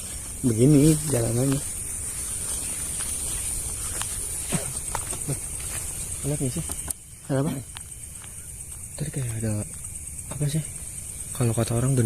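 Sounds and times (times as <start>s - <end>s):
footsteps on a path: 0.0s - 7.0s
high-pitched hiss: 0.0s - 12.0s.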